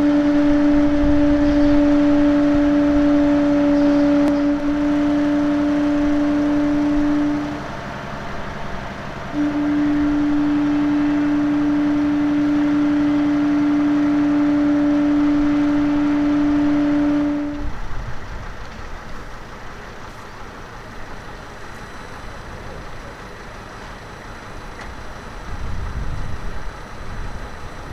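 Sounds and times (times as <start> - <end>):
steady machine hum: 0.0 - 27.9.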